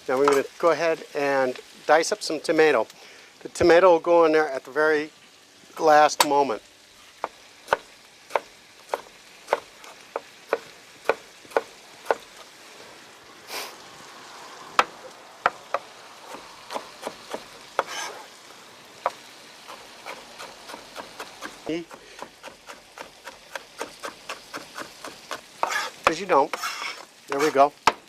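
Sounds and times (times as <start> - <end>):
faint sizzle of frying: 0.0 - 28.0
knife chopping on cutting board: 20.0 - 28.0.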